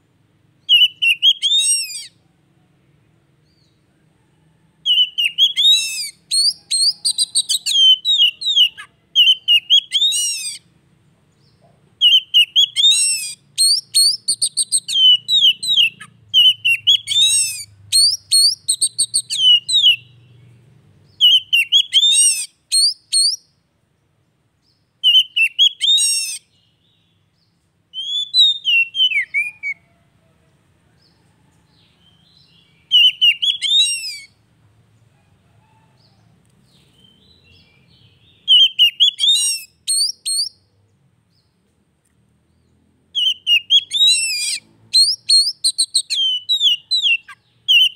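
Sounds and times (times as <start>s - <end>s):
bird whistled song: 0.6s - 2.2s, 4.8s - 10.7s, 11.4s - 23.6s, 24.6s - 29.8s, 31.0s - 34.4s, 36.6s - 40.7s, 43.2s - 47.9s.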